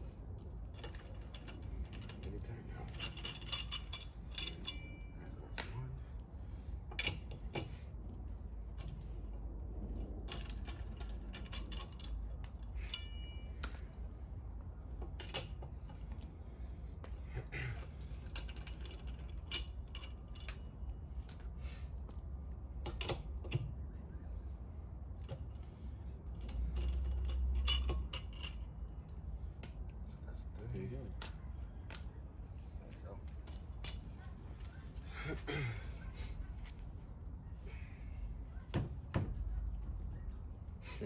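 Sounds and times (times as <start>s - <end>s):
lug wrench clinking on lug nuts: 2.9s - 6.0s, 10.3s - 14.0s, 26.3s - 29.9s.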